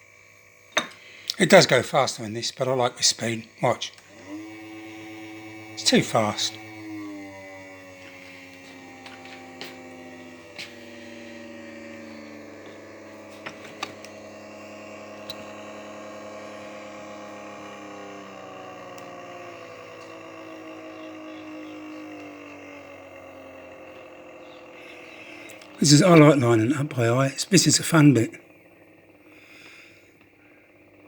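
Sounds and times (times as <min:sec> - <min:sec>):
model train motor whining: 0:00.0 - 0:31.0
wheels clicking on rail joints: 0:05.2 - 0:14.2.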